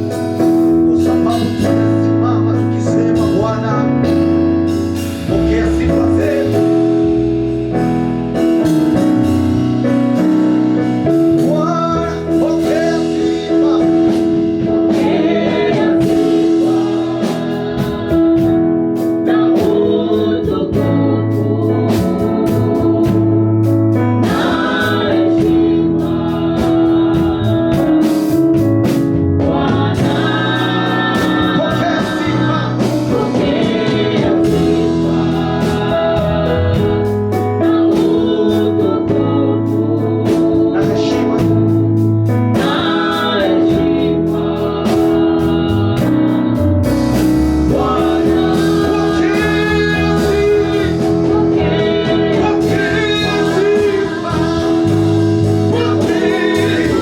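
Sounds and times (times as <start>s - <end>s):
gospel band playing: 0.0s - 57.0s
person singing: 11.4s - 23.4s, 29.4s - 41.9s, 47.7s - 57.0s.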